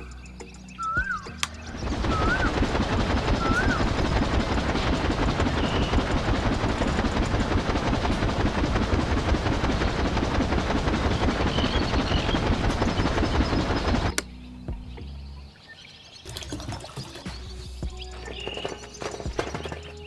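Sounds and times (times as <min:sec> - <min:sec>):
small machine rattling: 0:01.8 - 0:14.1.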